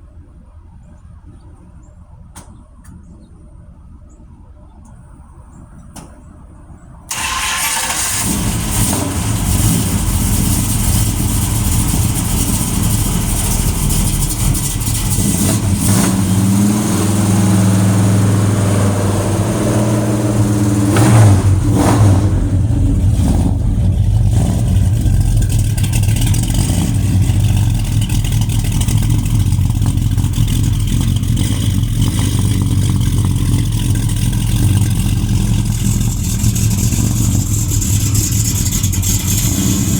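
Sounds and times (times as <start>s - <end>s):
car engine exhaust accelerating: 7.1s - 39.9s.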